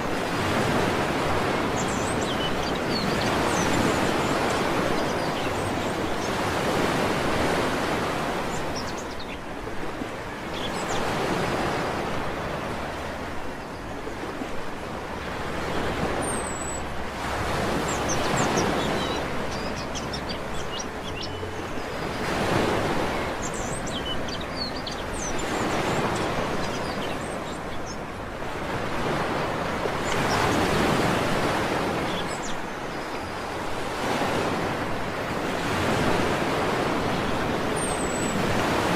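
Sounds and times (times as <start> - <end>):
waves breaking on a beach: 0.0 - 38.9
small birds chirping: 1.6 - 6.6, 8.4 - 9.5, 17.8 - 28.1.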